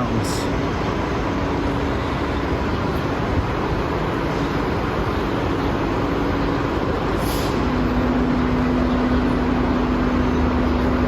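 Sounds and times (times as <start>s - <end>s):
low engine hum: 0.0s - 11.0s
traffic rumble: 0.0s - 11.0s
brief hiss: 7.2s - 7.8s.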